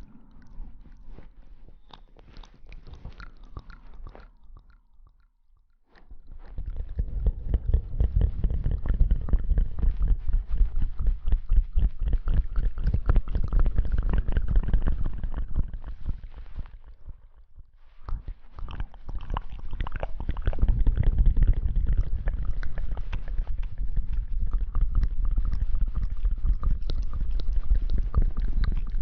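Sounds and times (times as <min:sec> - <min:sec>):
heavy low rumble: 0:00.0 - 0:01.9
close rustling and scrubbing: 0:05.9 - 0:29.0.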